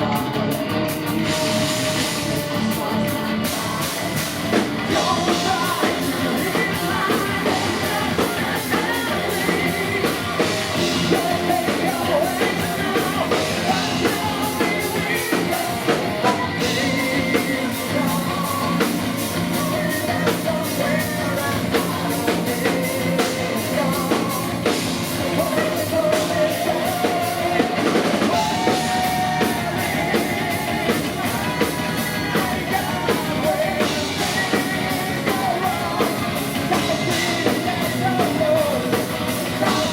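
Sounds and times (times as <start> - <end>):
heavy metal band playing: 0.0 - 39.9
person singing: 0.0 - 39.9.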